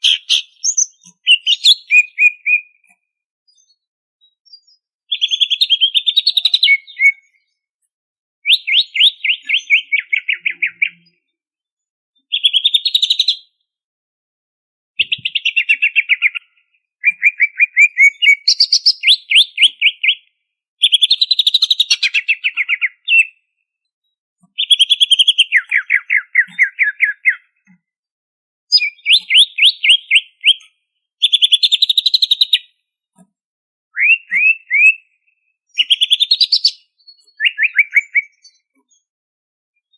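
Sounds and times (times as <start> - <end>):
bird singing rattling phrases: 0.0 - 2.9, 3.6 - 7.4, 8.4 - 11.3, 12.2 - 13.5, 15.0 - 23.4, 24.5 - 27.7, 28.7 - 32.6, 33.9 - 39.1.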